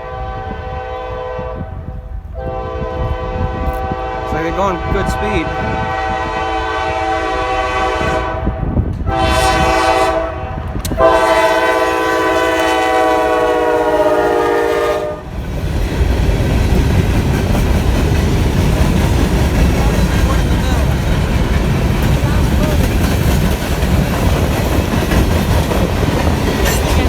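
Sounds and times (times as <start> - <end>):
locomotive air horn blasts: 0.0 - 15.3
train wheels rumbling on rail: 0.0 - 27.0.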